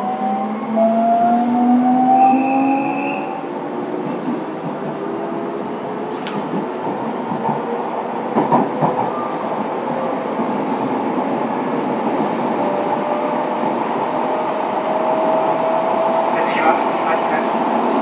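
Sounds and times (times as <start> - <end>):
train wheels rolling on rail: 0.3 - 18.0
rail-joint clicks: 6.1 - 7.6, 8.3 - 9.6.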